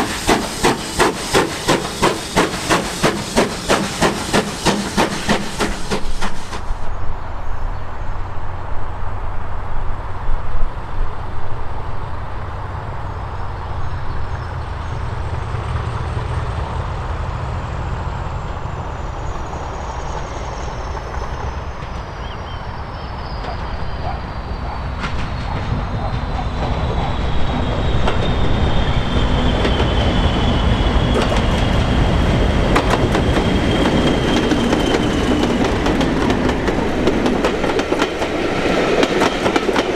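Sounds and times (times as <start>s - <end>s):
train wheels clattering: 0.0s - 6.8s, 23.4s - 28.5s, 29.1s - 39.9s.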